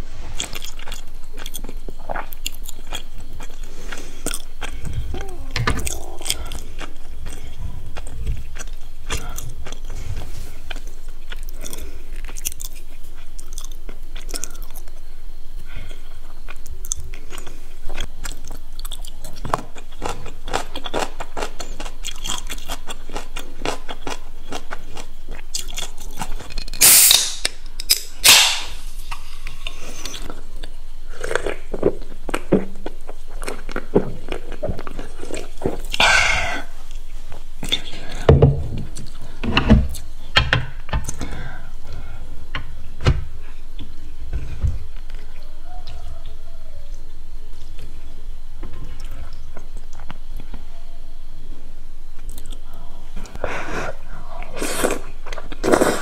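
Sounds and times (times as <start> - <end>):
chewing crisp fried food: 0.4 - 15.1, 15.9 - 27.0.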